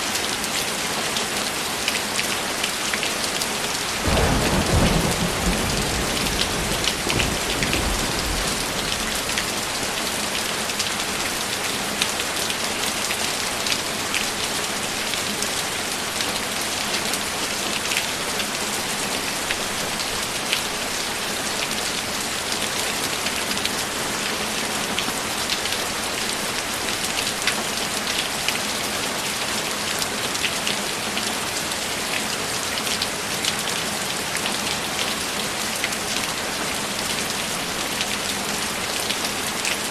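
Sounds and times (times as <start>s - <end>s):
heavy rain: 0.0s - 39.9s
low thunder rumble: 4.0s - 9.7s.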